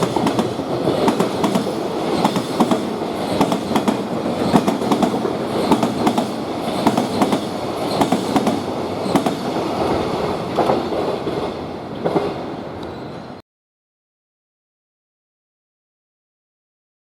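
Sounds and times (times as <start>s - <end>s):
train wheels clacking over rails: 0.0s - 12.5s
train wagons rumbling: 0.0s - 13.4s.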